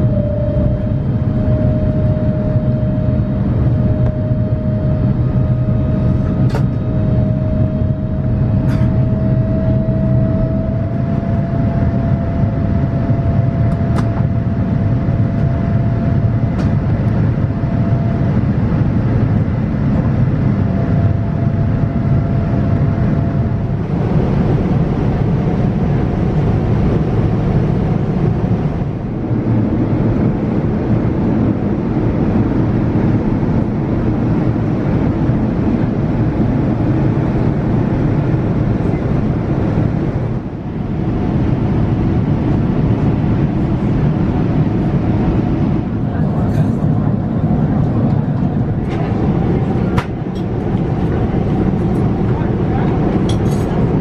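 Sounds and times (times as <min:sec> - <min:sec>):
thin rising whine: 0:00.0 - 0:06.2
airliner cabin engine rumble: 0:00.0 - 0:54.0.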